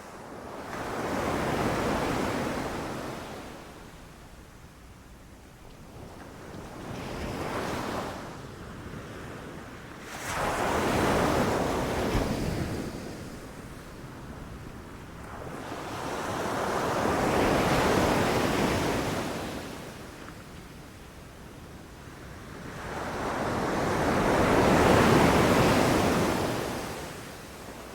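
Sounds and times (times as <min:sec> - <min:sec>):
ocean waves breaking on beach: 0:22.2 - 0:27.9.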